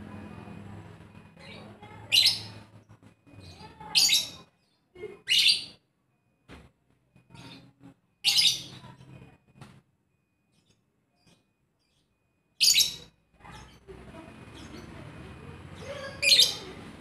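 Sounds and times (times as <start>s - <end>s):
bird chirping high-pitched: 1.1s - 5.8s, 7.3s - 9.0s, 10.5s - 17.0s.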